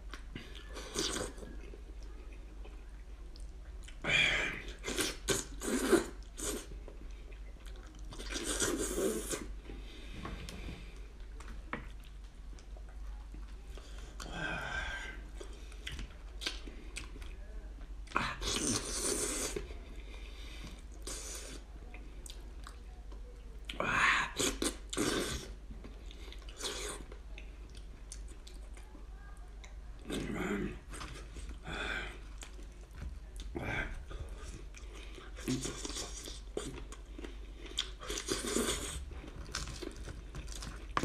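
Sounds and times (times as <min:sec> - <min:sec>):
man chewing meat: 0:04.6 - 0:14.4, 0:15.3 - 0:17.4, 0:24.4 - 0:28.9, 0:29.6 - 0:41.0.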